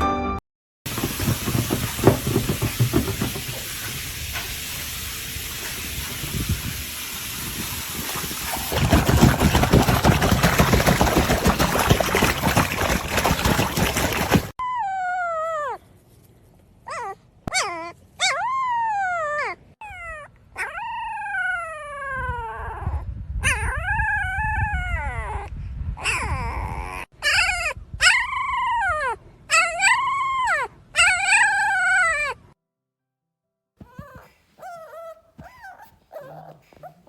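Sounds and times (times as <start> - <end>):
dog howling and whining: 14.6 - 15.8, 16.9 - 32.5, 33.8 - 37.0.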